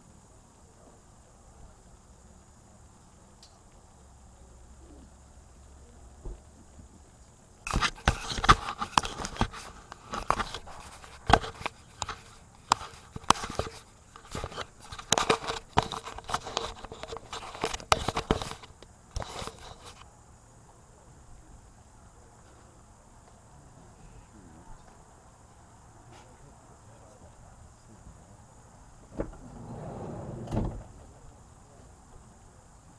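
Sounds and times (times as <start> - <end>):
faint steady background: 0.0 - 32.9
handling clicks knocks and scrapes: 7.7 - 20.1.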